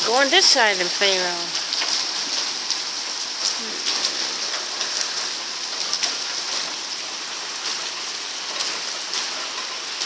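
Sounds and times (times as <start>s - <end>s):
heavy rain hiss: 0.0s - 10.0s.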